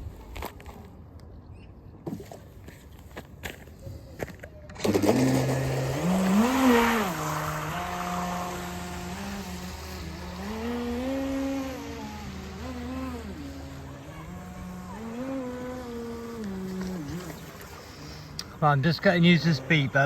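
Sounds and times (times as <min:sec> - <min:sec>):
electric motor whining: 0:04.8 - 0:18.4
hissing water spray: 0:04.8 - 0:18.4.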